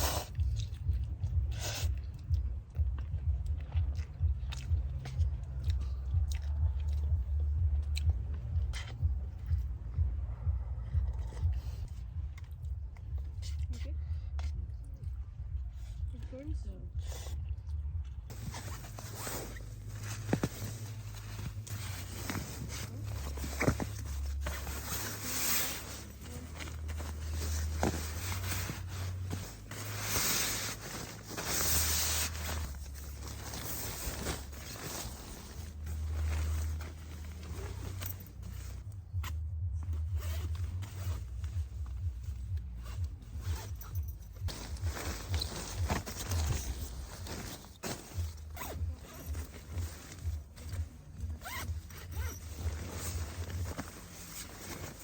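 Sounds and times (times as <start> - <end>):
low steady hum: 0.0 - 55.0
low uneven rumble: 0.0 - 55.0
zipper being pulled: 18.3 - 38.8, 40.1 - 41.6, 42.8 - 55.0
rustling and scraping: 18.3 - 55.0.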